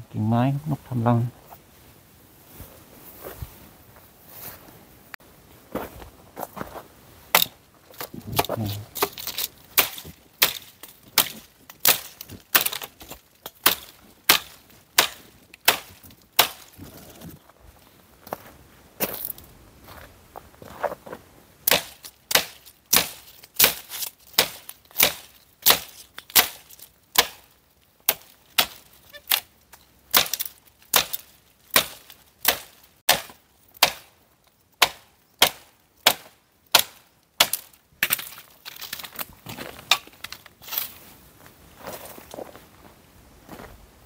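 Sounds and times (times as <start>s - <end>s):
blade chopping dry wood: 7.3s - 17.4s, 21.6s - 34.2s, 34.8s - 40.8s.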